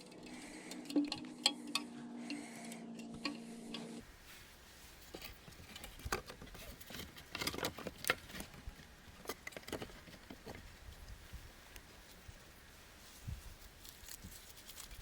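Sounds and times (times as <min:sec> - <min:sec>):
rustling: 0:04.0 - 0:15.0.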